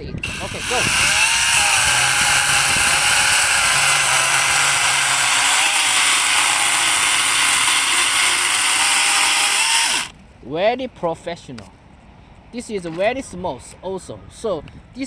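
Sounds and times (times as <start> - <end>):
chainsaw cutting through branch: 0.2 - 10.1.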